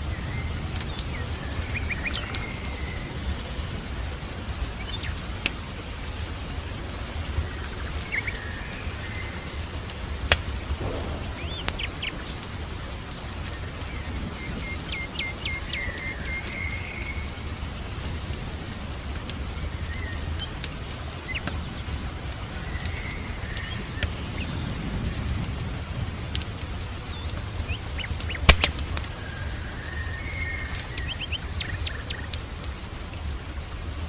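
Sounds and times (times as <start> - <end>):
steady rain: 0.0 - 34.0
sharp pop: 10.8 - 12.9
birds chirping: 10.8 - 13.1.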